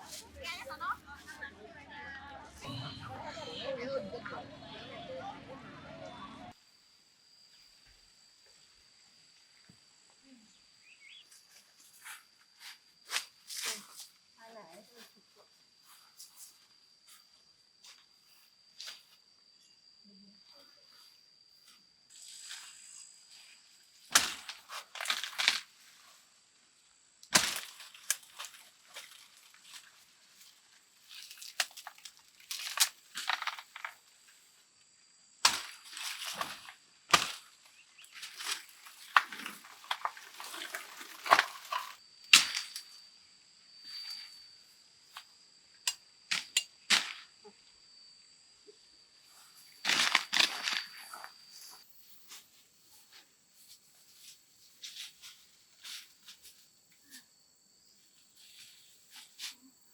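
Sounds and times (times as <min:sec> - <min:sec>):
goods being handled: 0:38.2 - 0:42.0.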